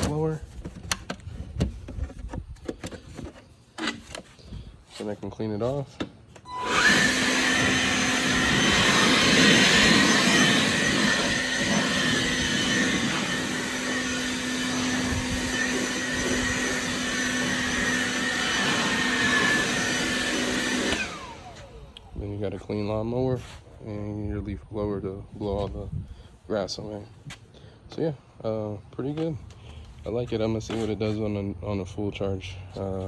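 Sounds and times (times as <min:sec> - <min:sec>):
leaf blower whining: 0:00.0 - 0:23.2.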